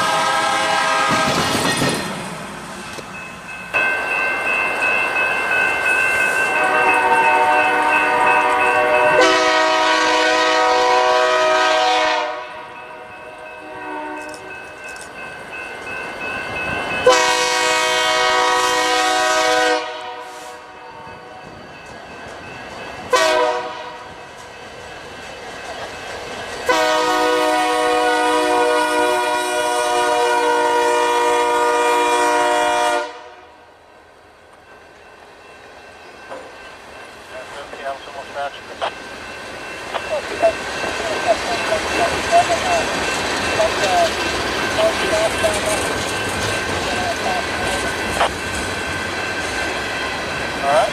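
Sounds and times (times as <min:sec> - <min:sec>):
train air horn blasts: 0:00.0 - 0:01.6, 0:06.4 - 0:14.5, 0:17.0 - 0:21.3, 0:23.1 - 0:24.2, 0:26.6 - 0:33.6
passing train running noise: 0:00.0 - 0:50.9.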